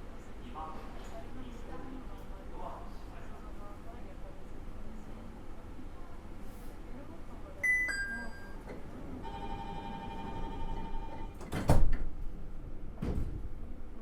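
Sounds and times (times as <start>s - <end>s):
electronic warning tone: 9.2s - 11.4s
train doors thumping shut: 11.4s - 12.2s.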